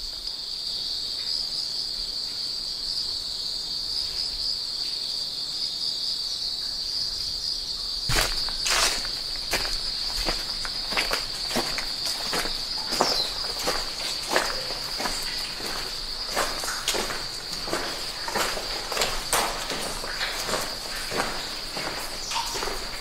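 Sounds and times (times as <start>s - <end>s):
high-pitched insect chorus: 0.0s - 23.0s
footsteps at walking pace: 8.1s - 23.0s.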